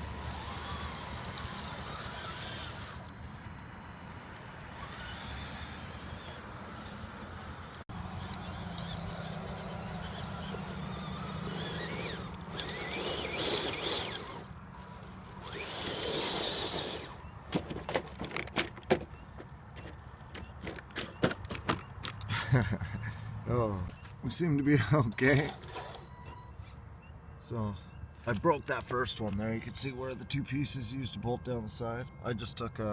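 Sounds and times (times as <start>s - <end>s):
toy truck motor whining: 0.0s - 17.3s, 25.3s - 26.7s.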